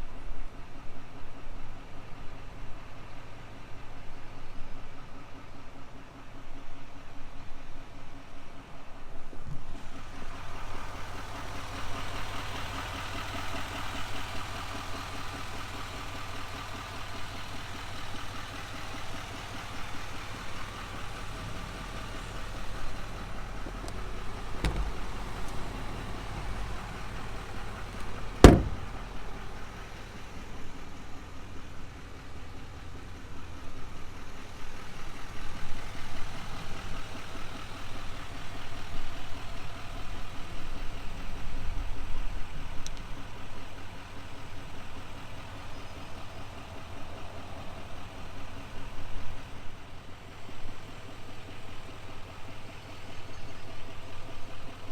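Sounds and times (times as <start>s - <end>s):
truck engine idling: 0.4s - 54.9s
sharp knocks: 24.6s - 25.2s, 28.4s - 29.0s.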